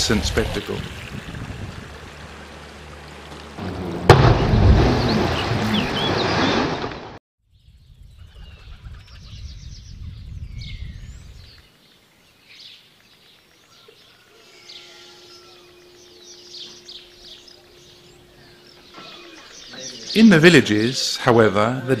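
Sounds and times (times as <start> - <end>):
rushing water: 0.0 - 6.2
low rumble: 0.9 - 7.2
birds chirping and calling: 4.9 - 6.6, 7.9 - 21.5.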